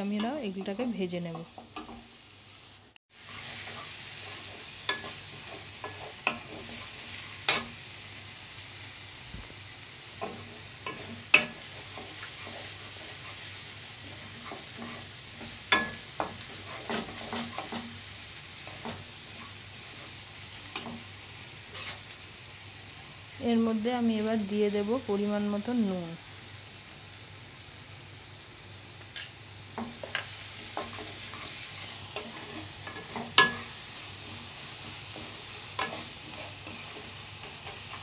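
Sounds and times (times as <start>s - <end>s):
vegetables sizzling in oil: 0.0s - 38.0s
utensil knocking and scraping pan: 14.3s - 17.9s, 32.2s - 38.0s.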